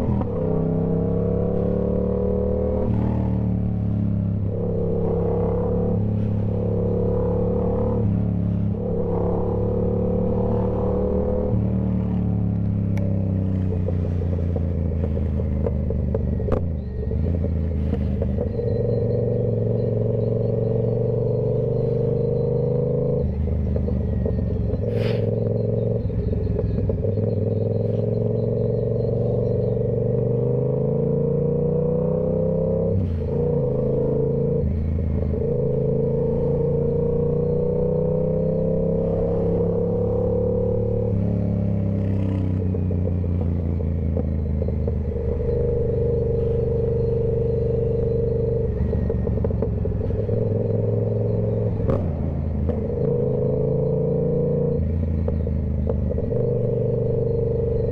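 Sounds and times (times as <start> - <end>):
motorcycle engine running: 0.0 - 57.9.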